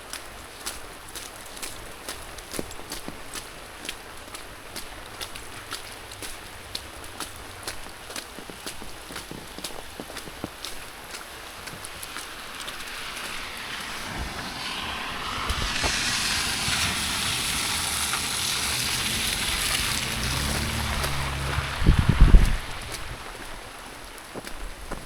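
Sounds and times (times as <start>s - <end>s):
tyres hissing on wet road: 0.0s - 25.0s
low engine hum: 11.0s - 24.2s.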